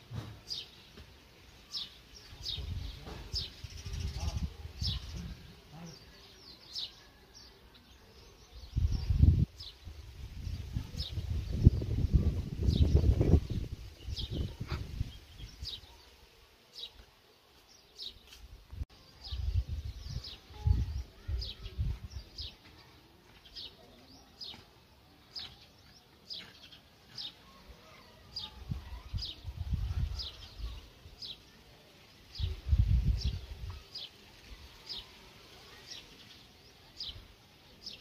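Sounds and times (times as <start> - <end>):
wind gusts on microphone: 8.6 - 15.8, 18.7 - 22.5, 28.6 - 30.9, 32.4 - 33.8.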